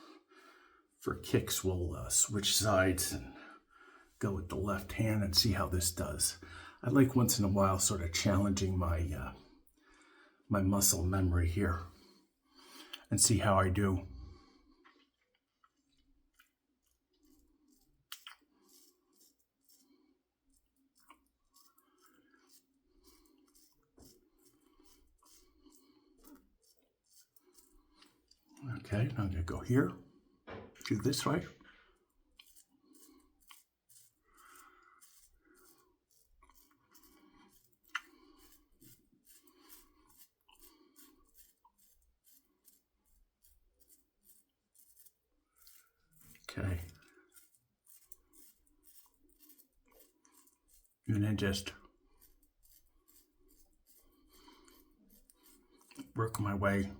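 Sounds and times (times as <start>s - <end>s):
razor scraping stubble: 15.8s - 29.9s, 30.8s - 56.9s.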